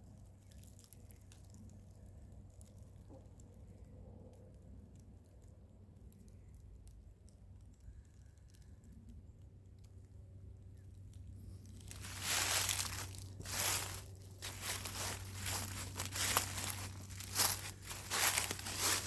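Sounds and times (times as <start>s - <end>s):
footsteps crunching on forest floor: 11.8s - 19.0s.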